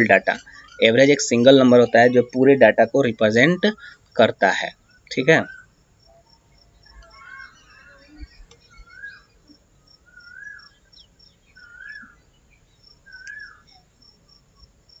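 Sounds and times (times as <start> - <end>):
high-pitched insect chirping: 0.0 - 15.0
bird whistled call: 7.0 - 9.3, 10.1 - 10.8, 11.6 - 12.2, 13.1 - 13.8.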